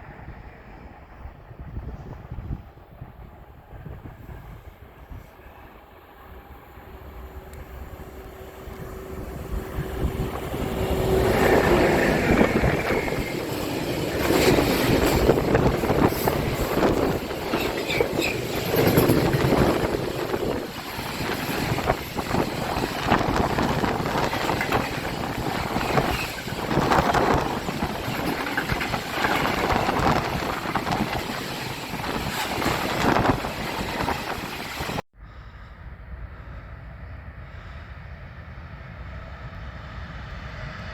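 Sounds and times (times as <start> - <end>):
train wheels clattering on rails: 7.5 - 35.0.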